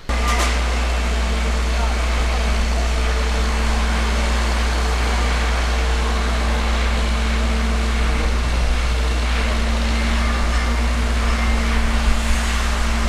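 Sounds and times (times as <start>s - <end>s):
faint machine hum: 0.0s - 13.0s
steady low rumble: 0.0s - 13.0s.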